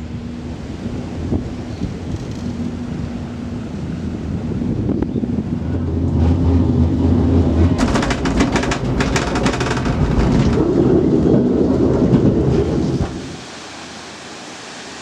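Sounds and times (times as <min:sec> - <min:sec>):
cable car low rumble: 0:00.0 - 0:13.6
rapid rattling clatter: 0:05.7 - 0:13.4.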